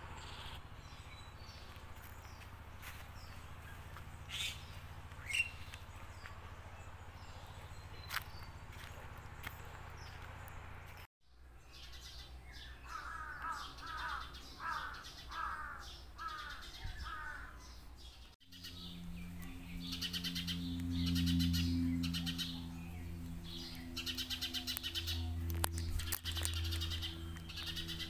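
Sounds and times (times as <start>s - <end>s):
birds calling: 0.0s - 28.0s
low hum: 17.8s - 28.0s.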